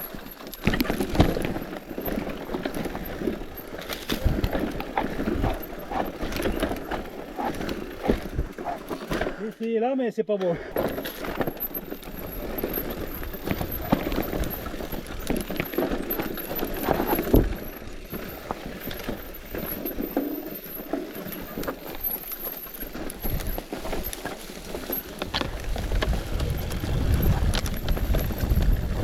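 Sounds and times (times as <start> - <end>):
bike rattling over rocky ground: 0.0 - 9.9, 10.7 - 29.0
wind on microphone: 25.3 - 29.0.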